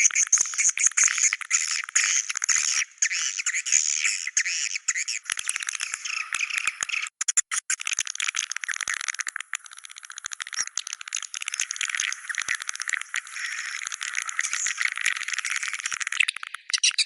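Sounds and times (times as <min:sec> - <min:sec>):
swiftlet chirps and clicks: 0:05.5 - 0:17.0.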